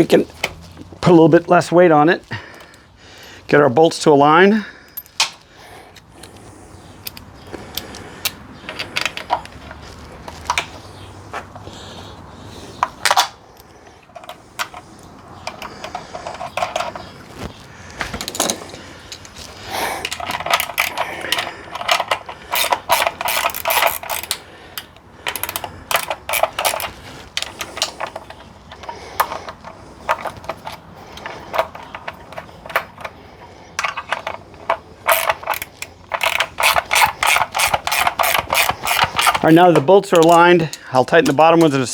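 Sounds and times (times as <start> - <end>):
metal clinks and knocks: 4.8 - 5.4, 7.0 - 10.9, 12.8 - 17.2, 18.0 - 41.8
ratchet wrench clicking: 18.3 - 33.2, 33.8 - 41.7.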